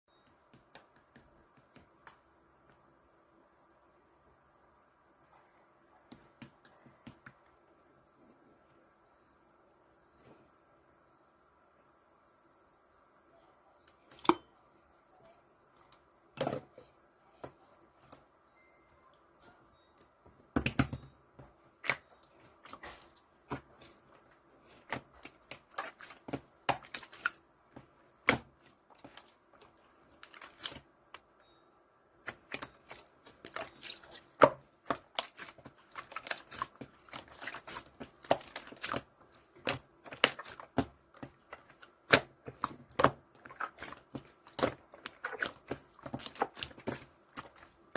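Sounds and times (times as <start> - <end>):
slime squishing with sticky pops: 21.8 - 31.3, 32.2 - 47.9.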